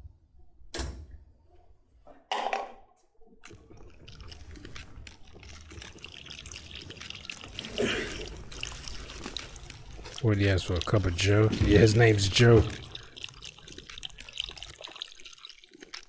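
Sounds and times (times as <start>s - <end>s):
liquid pouring into a cup: 3.4s - 16.0s.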